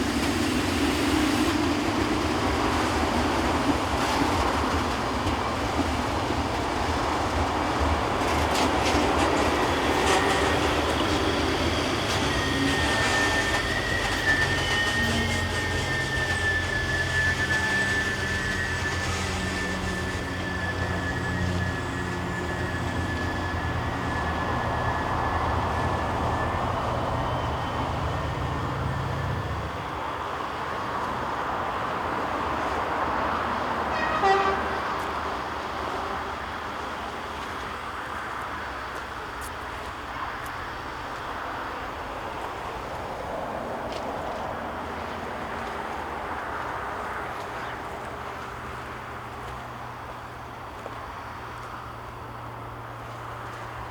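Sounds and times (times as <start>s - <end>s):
train running on tracks: 0.0s - 53.9s
short train horn toot: 8.9s - 25.1s, 33.7s - 36.5s.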